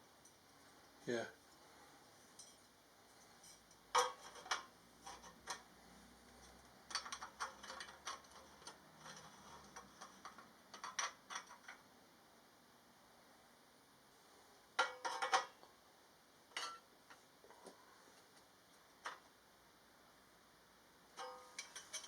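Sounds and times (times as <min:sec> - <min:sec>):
metal parts clinking: 0:21.2 - 0:22.0.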